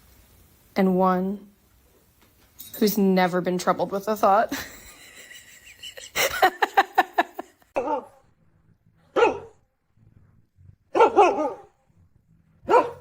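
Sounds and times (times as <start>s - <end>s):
dog barking: 7.8s - 8.2s, 9.1s - 9.6s, 10.9s - 11.8s, 12.6s - 13.0s.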